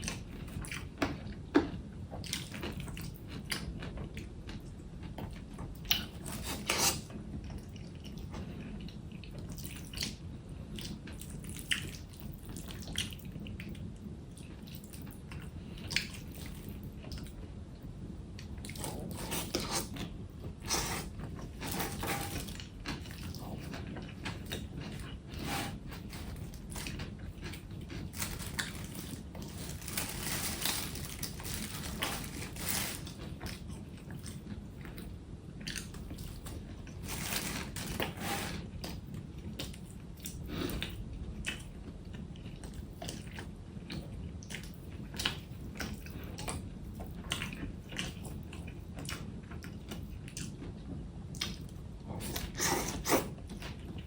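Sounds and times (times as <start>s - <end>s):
low steady hum: 0.0s - 54.0s
wet eating sounds: 18.4s - 54.0s.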